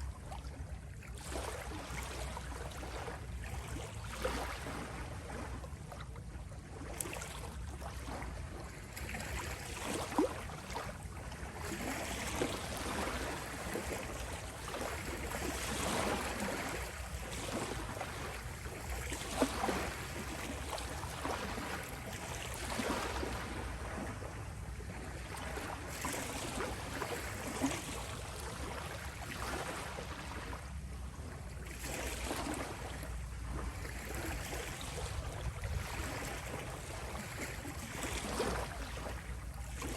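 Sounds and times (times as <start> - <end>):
small water splashes: 0.0 - 39.9.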